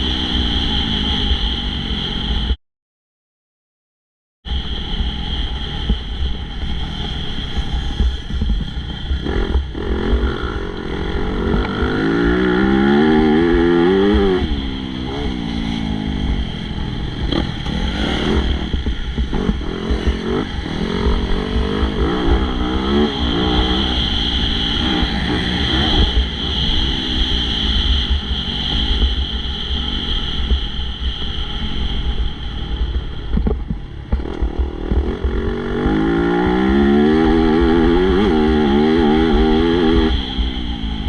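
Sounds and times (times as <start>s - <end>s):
motocross bike engines revving: 6.6s - 29.8s, 34.1s - 41.0s.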